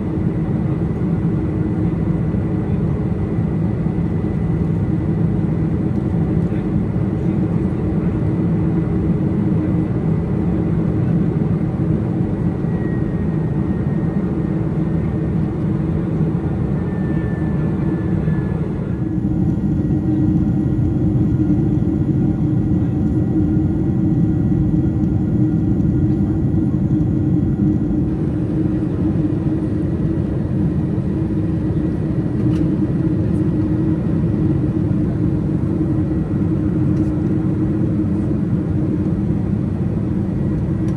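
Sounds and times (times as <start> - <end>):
airplane cabin drone: 0.0 - 40.9
faint whining tones: 12.4 - 30.4.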